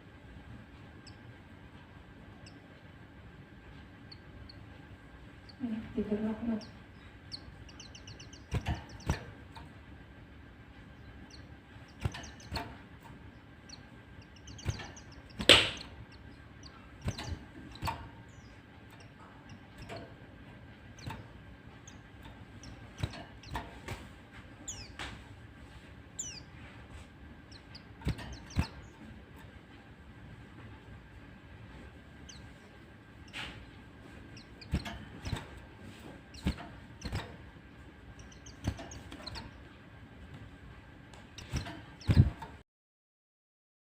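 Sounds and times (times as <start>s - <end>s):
white-eyes chirping and trilling: 6.4s - 9.4s, 13.5s - 20.1s, 24.6s - 25.0s, 26.1s - 26.6s, 27.4s - 29.1s, 34.2s - 37.4s, 38.1s - 39.6s.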